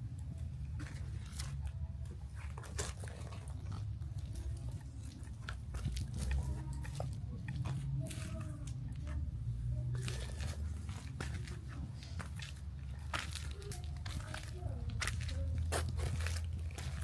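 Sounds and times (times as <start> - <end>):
low street rumble: 0.0 - 17.0
small clicks and crunches: 9.9 - 17.0.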